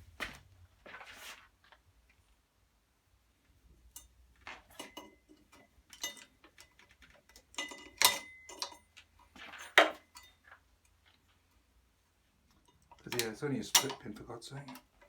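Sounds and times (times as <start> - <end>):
metal parts clicking and knocking: 4.0 - 10.6, 12.5 - 15.0.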